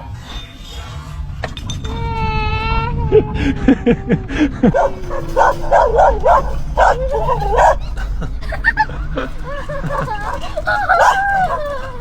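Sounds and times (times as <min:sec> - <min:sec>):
dog barking and yipping: 0:04.8 - 0:08.0, 0:08.6 - 0:12.0
dog whining: 0:04.8 - 0:08.0, 0:08.7 - 0:12.0.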